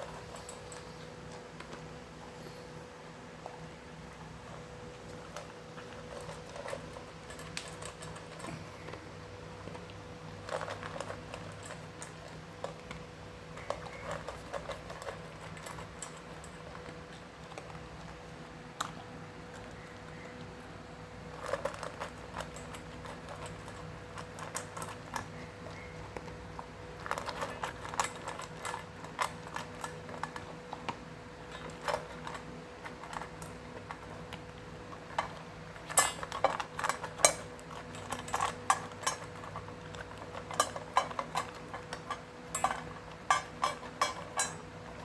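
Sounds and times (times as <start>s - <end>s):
dog crunching food from bowl: 0.0s - 2.3s, 3.4s - 45.0s
faint steady hum: 0.0s - 45.0s.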